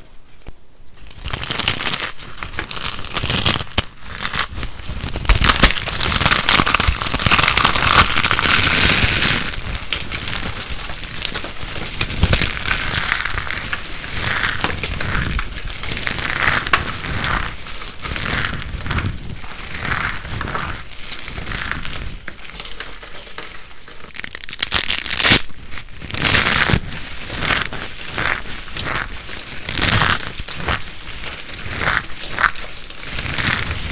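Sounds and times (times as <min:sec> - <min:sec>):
dry soap crunching: 0:01.0 - 0:33.9.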